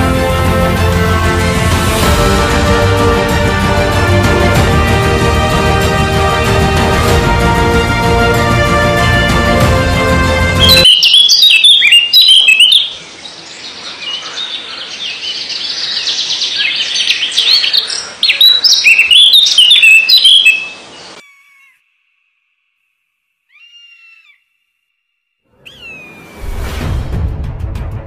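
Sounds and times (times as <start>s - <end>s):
background music: 0.0s - 11.0s, 26.4s - 28.0s
birds chirping: 9.7s - 21.8s, 25.5s - 26.5s.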